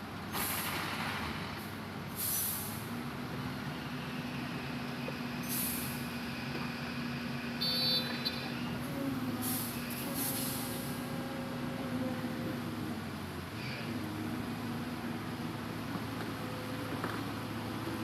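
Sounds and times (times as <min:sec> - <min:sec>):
excavator diesel engine running: 0:00.0 - 0:18.0
short hisses: 0:02.2 - 0:02.8.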